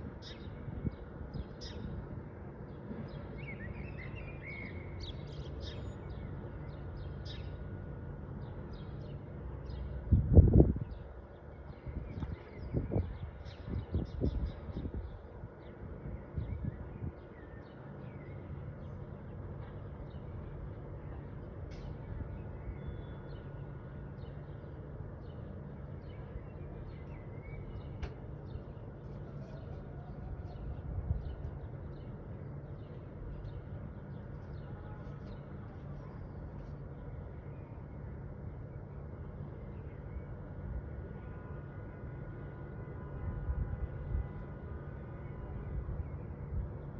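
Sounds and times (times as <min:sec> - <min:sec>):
steady low rumble: 0:23.7 - 0:41.0.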